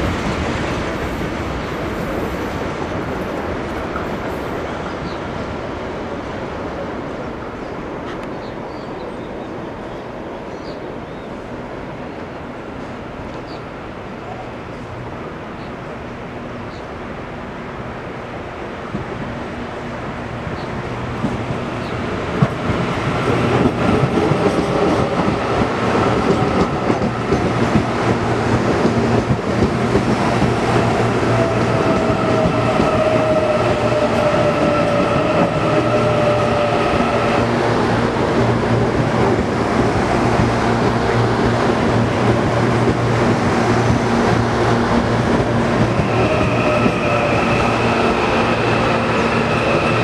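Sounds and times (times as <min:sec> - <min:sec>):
train wheels rumbling on rail: 0:00.0 - 0:50.0
electric train whine: 0:18.9 - 0:50.0.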